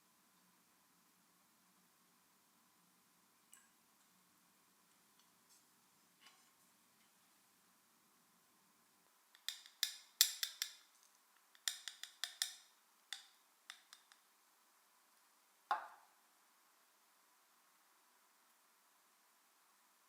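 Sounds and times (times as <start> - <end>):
small hard objects clicking: 9.4 - 14.2.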